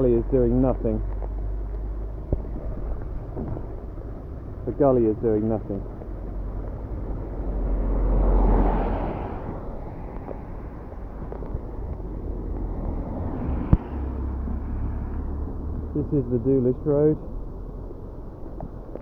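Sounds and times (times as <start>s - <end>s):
outdoor rumble: 0.0s - 19.0s
tyres hissing on wet road: 6.5s - 17.2s.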